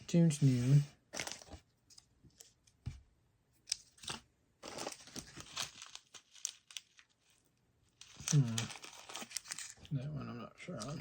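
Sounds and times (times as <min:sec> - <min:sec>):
plastic wrappers crinkling: 0:03.8 - 0:09.9.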